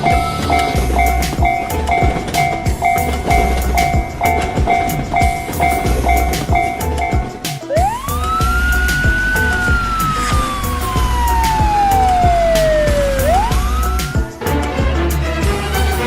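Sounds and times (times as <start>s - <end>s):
rapid clatter: 0.0s - 7.9s
siren-like whistling tone: 2.4s - 14.4s.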